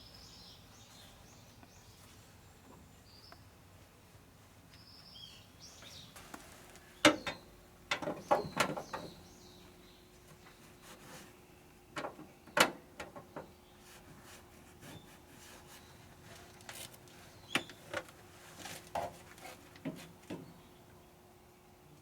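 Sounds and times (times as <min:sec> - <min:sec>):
faint steady hum: 0:00.0 - 0:22.0
knocks clicks and light scrapes: 0:12.0 - 0:20.5.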